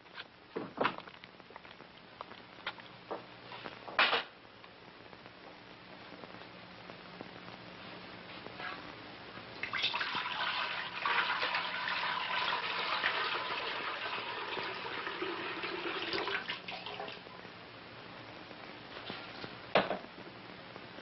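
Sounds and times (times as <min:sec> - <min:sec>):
water running from a tap: 0:09.6 - 0:17.2.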